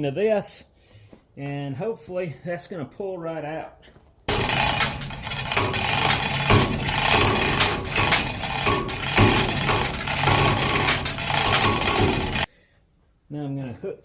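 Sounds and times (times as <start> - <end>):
electric hoist motor humming: 4.3 - 12.5.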